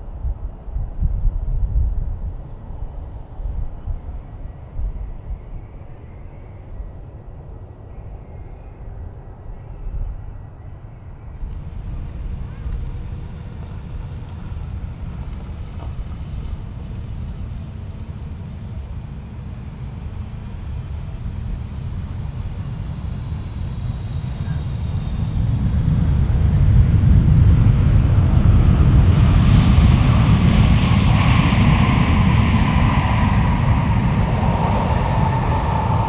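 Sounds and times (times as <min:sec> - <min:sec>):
jet engines rumbling: 0:00.0 - 0:36.0
wind buffeting microphone: 0:00.0 - 0:36.0
faint high whine: 0:04.0 - 0:26.5.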